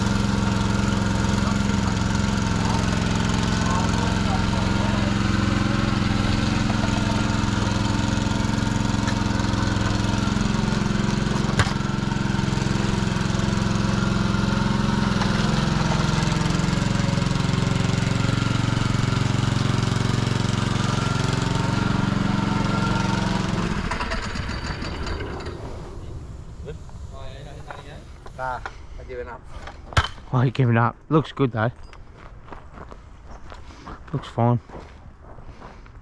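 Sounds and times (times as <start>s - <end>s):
small petrol engine running: 0.0s - 26.6s.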